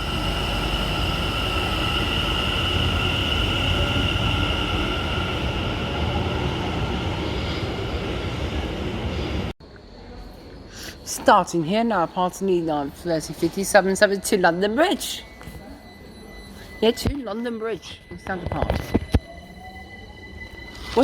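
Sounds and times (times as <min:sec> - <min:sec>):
high steady tones: 0:00.0 - 0:09.5
train wheels rushing on rail: 0:00.0 - 0:09.5.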